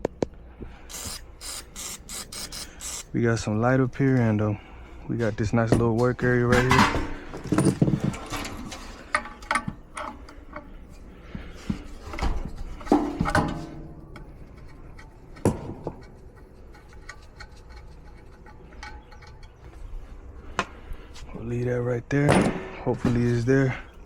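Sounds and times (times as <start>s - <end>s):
tools clicking and clattering: 5.5s - 19.9s.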